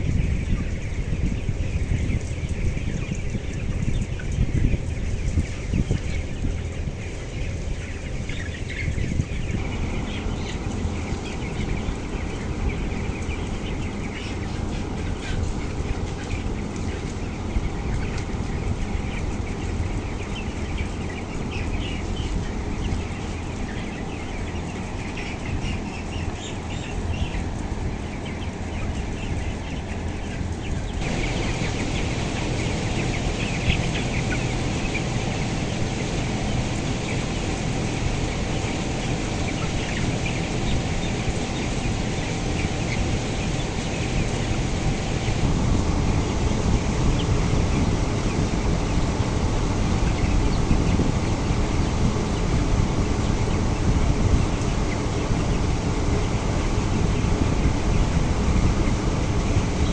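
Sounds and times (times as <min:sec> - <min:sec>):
chickens peeping and clucking: 0:00.0 - 0:59.9
low rumble: 0:31.0 - 0:43.3.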